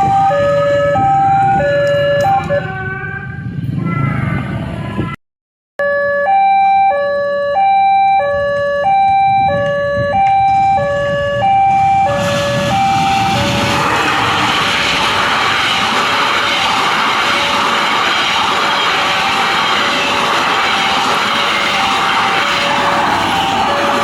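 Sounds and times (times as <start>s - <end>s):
approaching train rushing: 0.0s - 5.1s, 10.4s - 24.0s.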